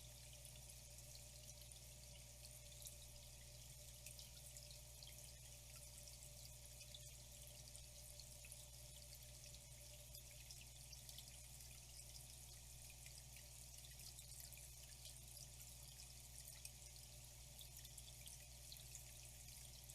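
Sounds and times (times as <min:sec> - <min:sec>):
low steady hum: 0:00.0 - 0:19.9
water trickling and dripping: 0:00.0 - 0:19.9.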